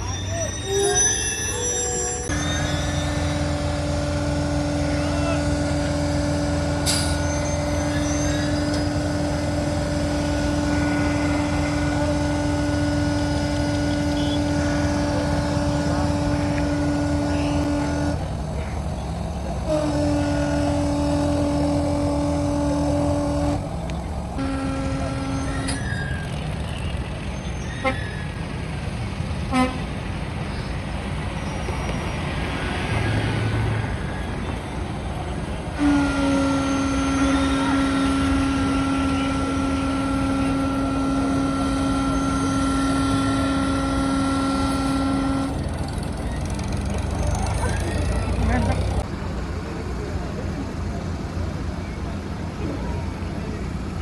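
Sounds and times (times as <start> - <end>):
heavy truck engines running: 1.4 - 54.0
truck horn blasts: 2.3 - 26.3, 29.4 - 29.9, 35.7 - 49.1.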